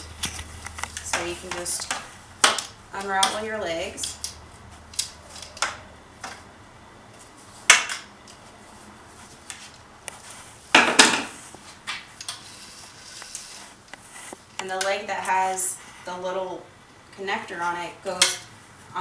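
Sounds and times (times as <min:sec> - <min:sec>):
metal panels clinking and knocking: 0:10.8 - 0:11.4.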